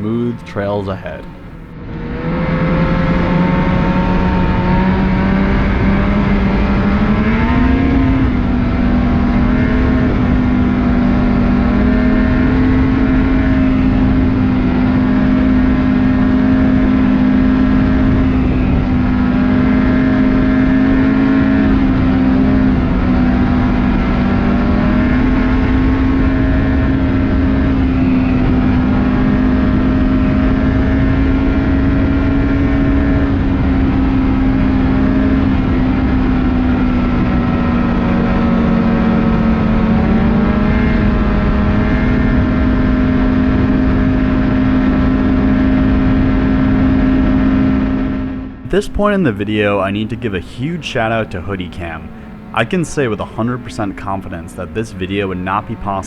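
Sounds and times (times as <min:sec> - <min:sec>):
snowmobile engine running: 0:48.7 - 0:56.0.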